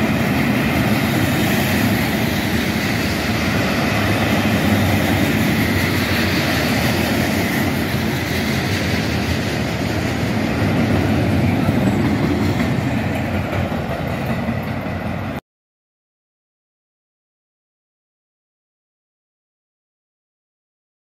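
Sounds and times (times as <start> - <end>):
steel train wheels on track: 0.0 - 15.4.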